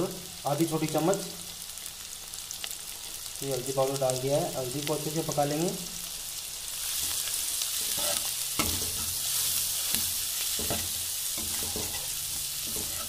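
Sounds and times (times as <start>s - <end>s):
onions sizzling in hot oil: 0.0s - 13.0s
metal spoon scraping pan: 7.0s - 13.0s.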